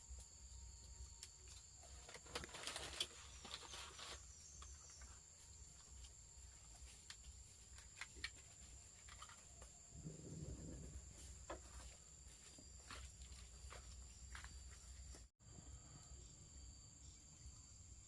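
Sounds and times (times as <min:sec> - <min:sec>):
high insect drone: 0:00.0 - 0:18.0
rustling: 0:01.3 - 0:15.3.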